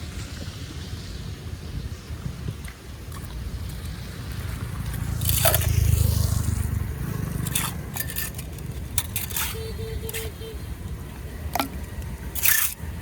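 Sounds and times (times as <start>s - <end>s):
wet debris scraping in drain: 5.0s - 6.4s, 7.1s - 10.3s.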